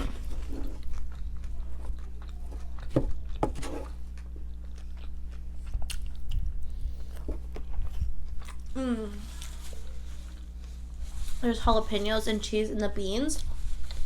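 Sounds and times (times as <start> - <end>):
chewing and biting food: 0.0 - 8.8.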